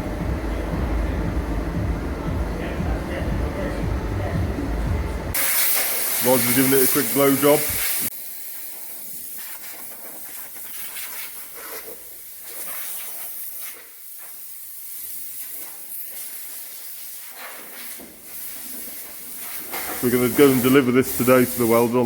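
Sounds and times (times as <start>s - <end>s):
compressed air blow gun hissing: 5.3s - 22.0s.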